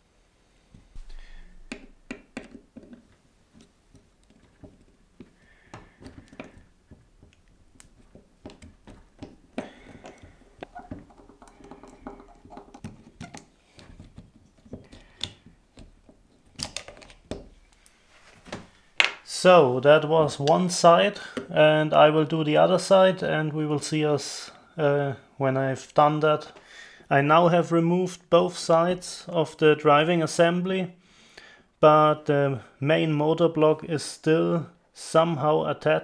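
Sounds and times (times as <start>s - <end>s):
small parts clicking and tapping: 1.7s - 17.9s.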